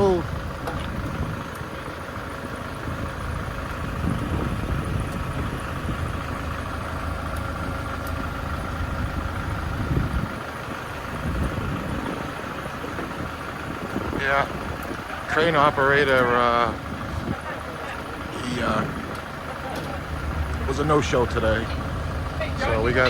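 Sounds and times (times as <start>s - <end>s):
tractor engine idling: 0.0s - 23.0s.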